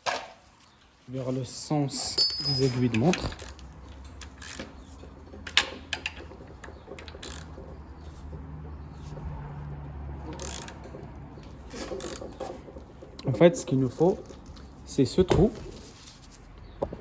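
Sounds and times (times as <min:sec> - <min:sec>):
wrench clicking on metal: 0:07.0 - 0:07.6, 0:10.3 - 0:10.9.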